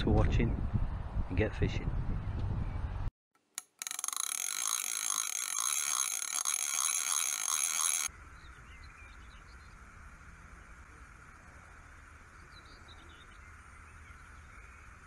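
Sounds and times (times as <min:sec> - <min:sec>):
small birds chirping faintly: 0:07.0 - 0:15.0.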